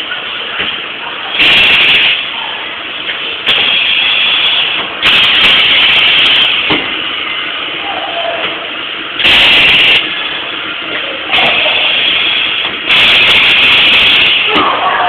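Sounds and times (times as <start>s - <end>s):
low machine noise: 0.0s - 15.0s
welding machine hissing bursts: 1.3s - 2.3s, 3.4s - 6.7s, 9.2s - 10.1s, 11.3s - 14.6s.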